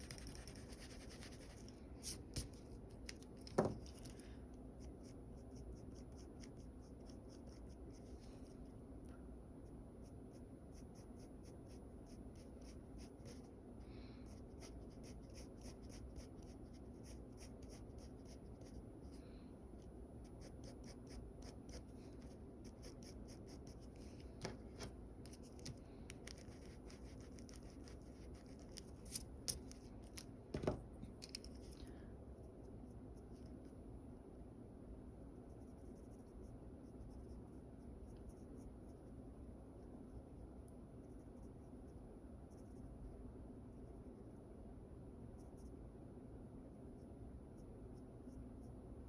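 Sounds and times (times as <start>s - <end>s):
steady low hum: 0.0s - 49.0s
pencil sketching on paper: 14.2s - 18.8s, 20.2s - 24.1s.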